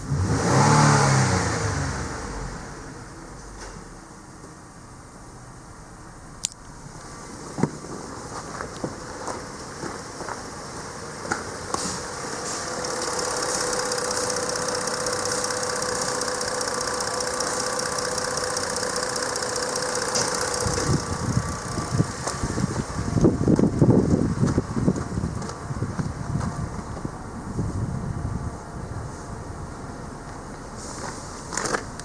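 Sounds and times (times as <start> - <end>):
car engine idling: 0.0 - 32.0
clicks and ticks: 12.7 - 22.4
wind gusts on microphone: 20.8 - 29.2.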